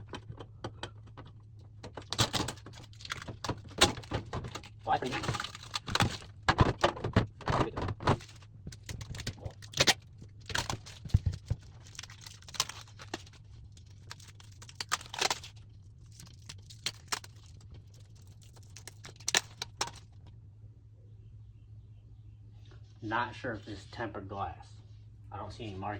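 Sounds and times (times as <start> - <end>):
clicks and knocks of shelves: 0.0 - 8.4
low steady hum: 0.0 - 25.9
plastic packaging rustling: 1.9 - 7.3, 7.9 - 20.3.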